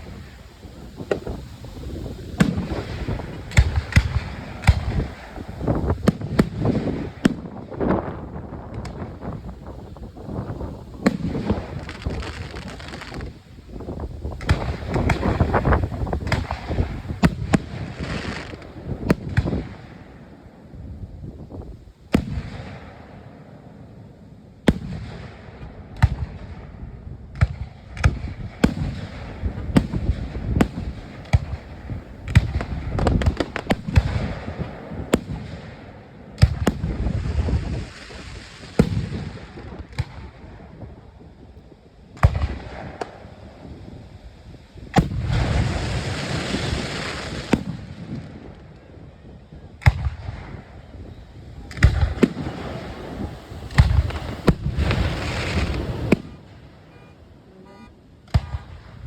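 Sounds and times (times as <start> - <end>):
firework bangs: 0.0 - 23.6, 24.6 - 41.2, 42.1 - 43.8, 44.8 - 59.0
low rolling rumble: 50.3 - 59.0.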